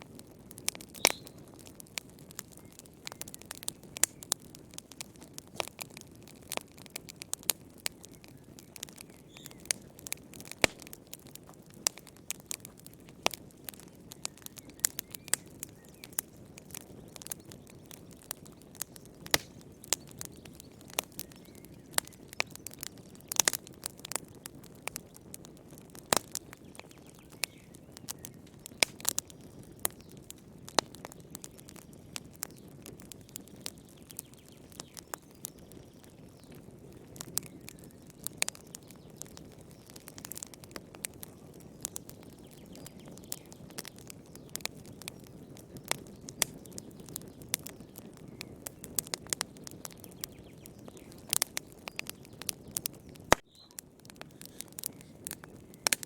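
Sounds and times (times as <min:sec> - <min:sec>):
low rumble of burning: 0:00.0 - 0:56.0
wood fire popping and snapping: 0:00.0 - 0:56.0.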